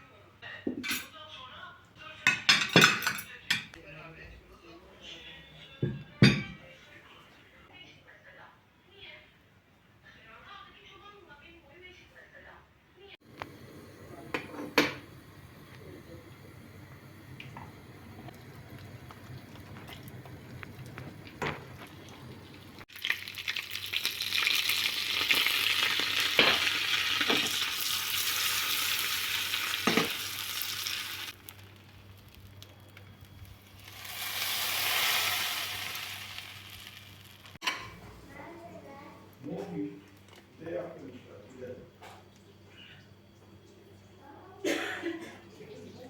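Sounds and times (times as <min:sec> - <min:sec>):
food sizzling in a pan: 0:13.2 - 0:37.6.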